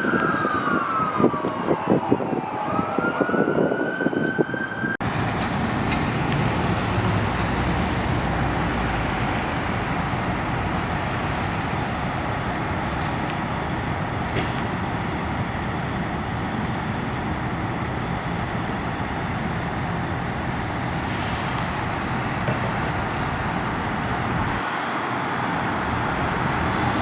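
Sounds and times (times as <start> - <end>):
fire truck siren wailing: 0.0 - 5.2
heavy vehicle engine and road noise: 0.0 - 27.0.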